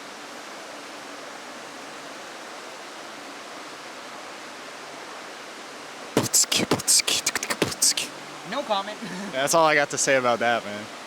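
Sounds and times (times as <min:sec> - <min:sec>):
waterfall rushing: 0:06.2 - 0:10.3.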